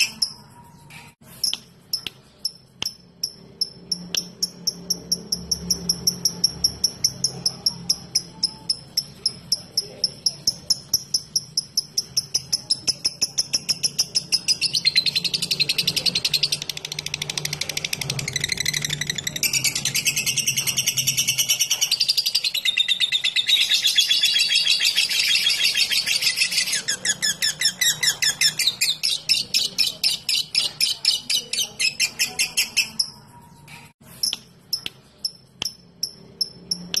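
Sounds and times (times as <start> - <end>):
bird chattering trill: 0.0 - 33.4
sharp ticks: 1.4 - 22.6, 34.2 - 37.0.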